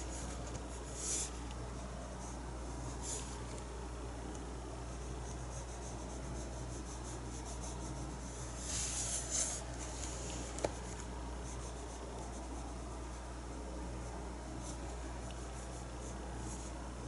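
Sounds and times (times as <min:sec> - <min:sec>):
paintbrush stroking canvas: 0:00.0 - 0:03.6, 0:05.0 - 0:13.3
steady low hum: 0:00.0 - 0:17.0.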